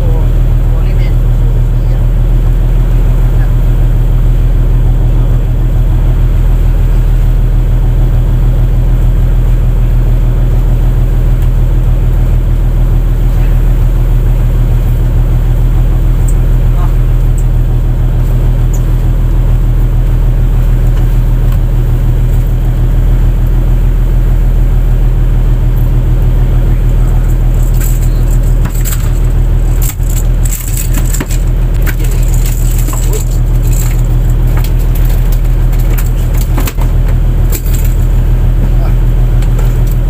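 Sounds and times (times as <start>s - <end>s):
boat engine running: 0.0s - 40.0s
clatters and knocks: 27.5s - 38.1s.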